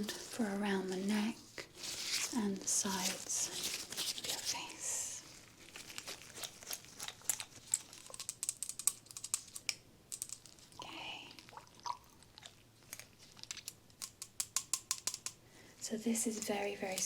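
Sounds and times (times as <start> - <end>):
soft rustle: 0.0 - 8.3
small sharp clicks of handled objects: 6.7 - 10.7, 12.9 - 15.4.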